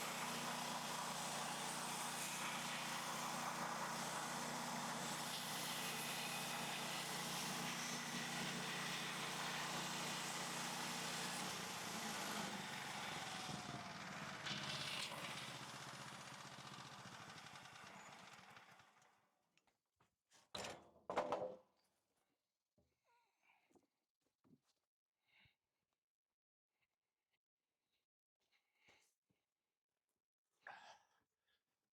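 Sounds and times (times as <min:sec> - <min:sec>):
bandsaw sawmill running: 0:00.0 - 0:19.0.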